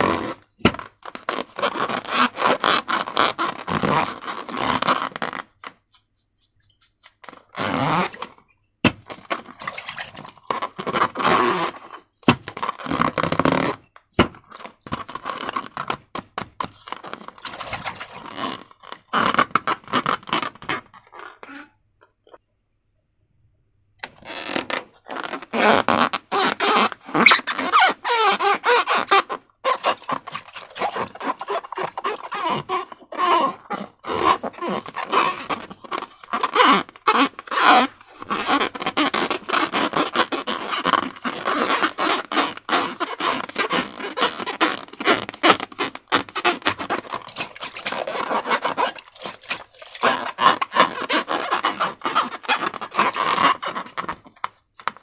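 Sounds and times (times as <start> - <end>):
slime squelching by hand: 9.0 - 11.2, 17.2 - 18.4, 26.3 - 54.0.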